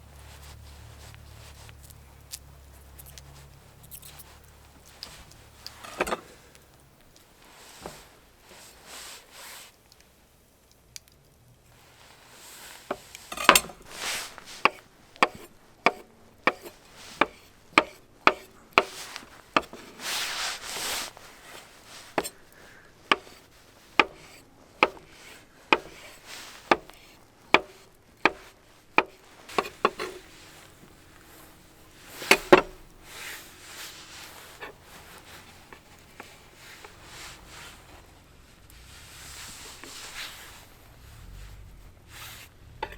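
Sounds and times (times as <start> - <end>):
soft rubbing: 0.0 - 10.2, 11.7 - 42.9
scraping on wood: 0.1 - 9.3, 12.0 - 42.9
blade chopping on wood: 12.9 - 21.2, 22.0 - 23.4, 24.0 - 31.2, 32.1 - 33.1.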